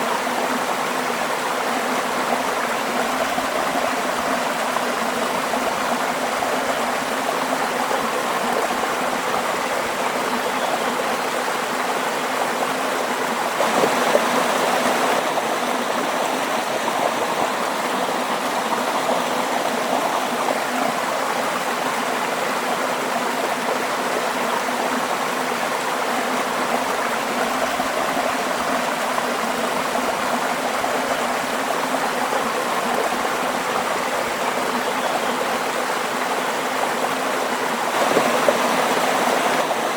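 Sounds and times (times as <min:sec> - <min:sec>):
waterfall roaring: 0:37.9 - 0:39.9.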